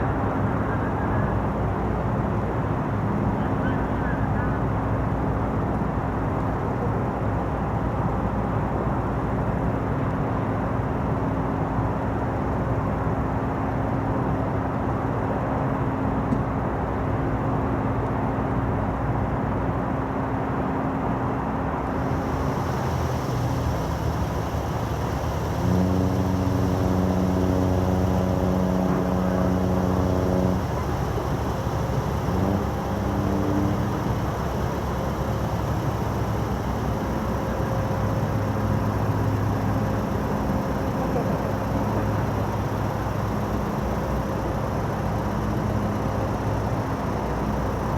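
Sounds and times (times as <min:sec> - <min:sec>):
steady rumble: 0:21.8 - 0:47.9.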